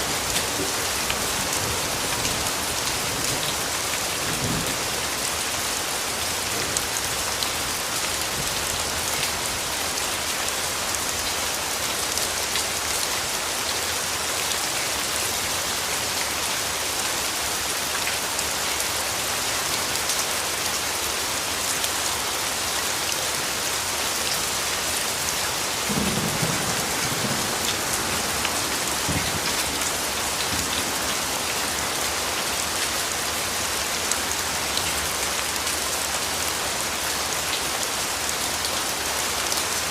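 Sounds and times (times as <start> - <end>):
steady rain falling: 0.0 - 39.9
distant thunder rumble: 25.9 - 30.9.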